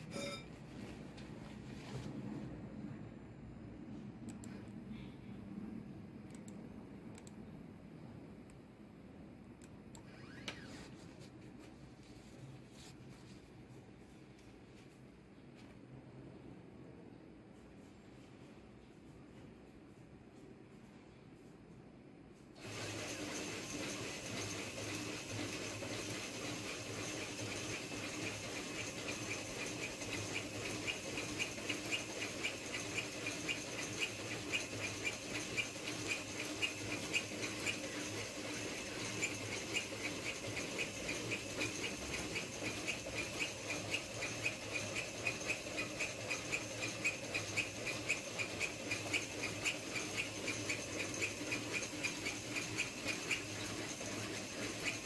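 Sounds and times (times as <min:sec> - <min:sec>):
motor hum: 0:22.6 - 0:55.0.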